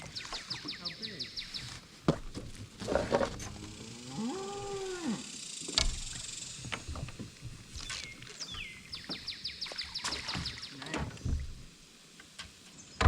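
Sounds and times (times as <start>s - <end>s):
cow mooing: 3.4s - 5.4s.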